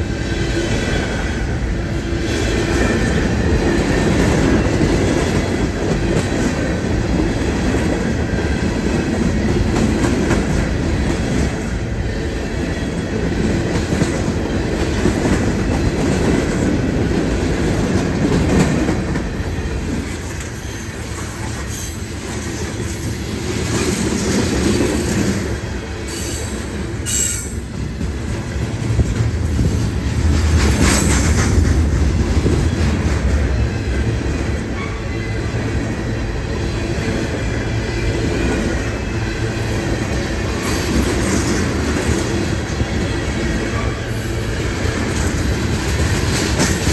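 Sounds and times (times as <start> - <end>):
train wheels rumbling: 0.0 - 46.9
train wheel squeals: 19.3 - 27.9, 32.6 - 46.9.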